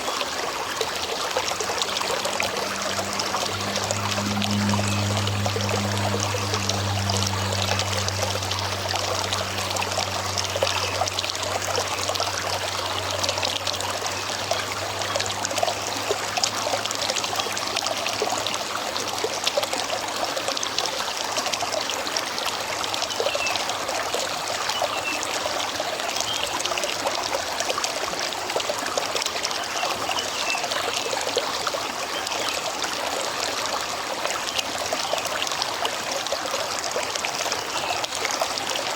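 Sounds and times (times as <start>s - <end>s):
river water bubbling: 0.0s - 38.9s
low hum: 0.8s - 19.6s.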